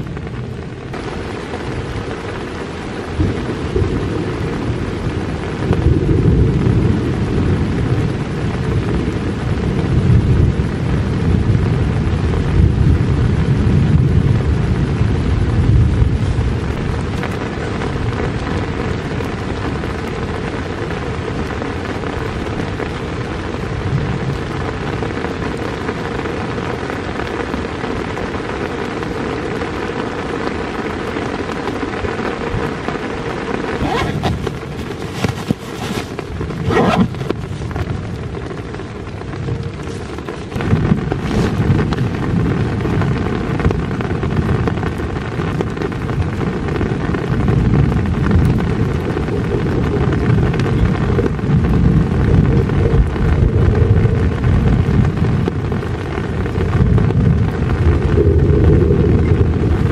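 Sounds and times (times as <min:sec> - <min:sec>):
steady rain: 0:00.0 - 0:59.9
backpack buckles clicking: 0:33.8 - 0:37.4.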